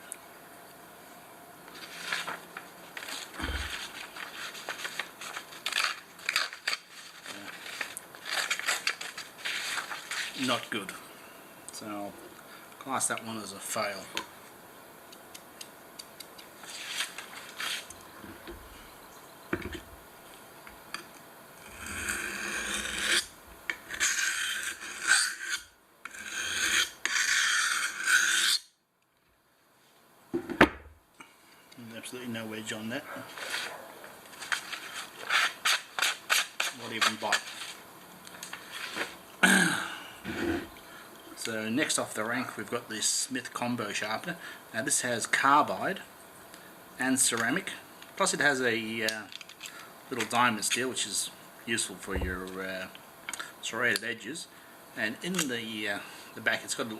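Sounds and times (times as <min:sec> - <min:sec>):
knife blade rasping strokes: 0:21.7 - 0:28.7
low thump: 0:52.1 - 0:52.4.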